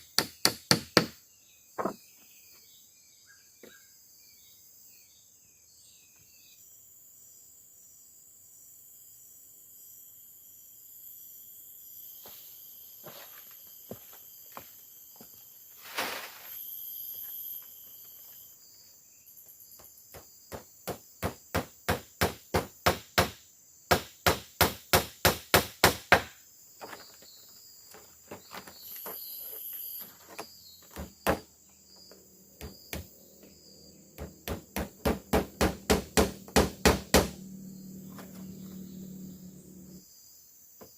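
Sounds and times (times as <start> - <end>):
crickets and insects buzzing: 0.0 - 40.9
hard rapid strikes: 34.2 - 37.6.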